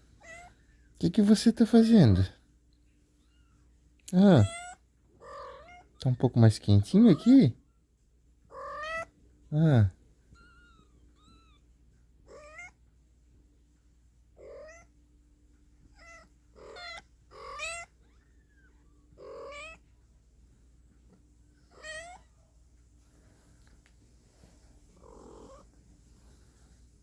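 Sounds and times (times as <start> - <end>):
cat meowing: 4.4 - 6.0, 8.5 - 9.1, 12.3 - 12.8, 14.4 - 14.9, 15.9 - 19.8, 21.7 - 22.4.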